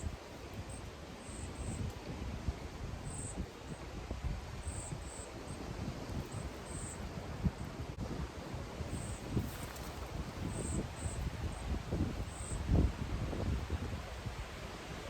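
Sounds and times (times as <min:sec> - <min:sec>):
insect chirps: 0:00.0 - 0:01.9, 0:03.0 - 0:03.8, 0:04.6 - 0:05.6, 0:06.2 - 0:07.1, 0:08.9 - 0:12.8
wind rumble on microphone: 0:00.0 - 0:15.0.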